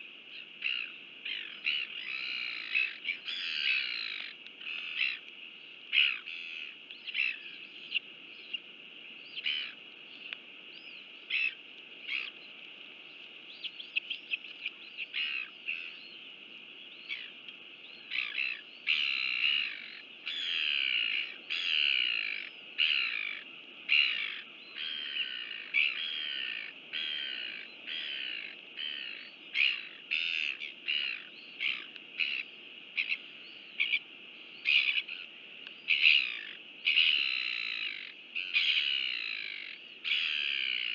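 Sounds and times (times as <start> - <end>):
steady high-pitched hiss: 0.0 - 40.9
birds chirping and squawking: 11.3 - 12.4, 18.1 - 33.2, 34.6 - 35.3, 35.9 - 40.9.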